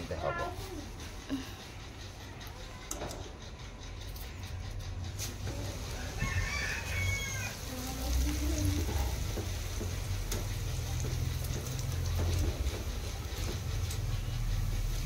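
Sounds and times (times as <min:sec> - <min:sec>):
rice frying in hot oil: 0:04.8 - 0:15.0
chicken calling: 0:05.6 - 0:07.8.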